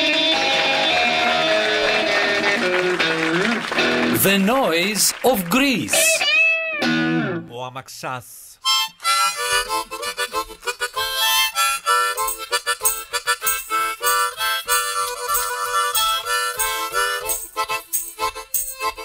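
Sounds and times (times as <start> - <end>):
rhythmic beat: 8.7 - 19.0
wind instrument melody: 8.7 - 19.0.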